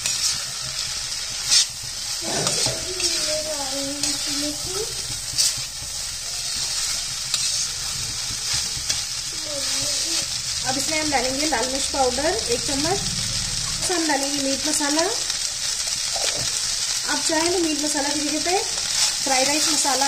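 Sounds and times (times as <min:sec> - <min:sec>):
spoon scraping and knocking pan: 0:00.0 - 0:09.8
rice and vegetables sizzling: 0:00.0 - 0:20.0.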